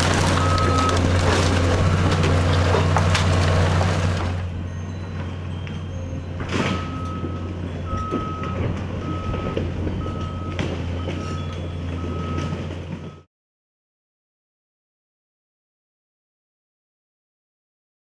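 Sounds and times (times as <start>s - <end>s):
diesel engine running: 0.0s - 13.2s
backup alarm beeping: 5.8s - 13.3s.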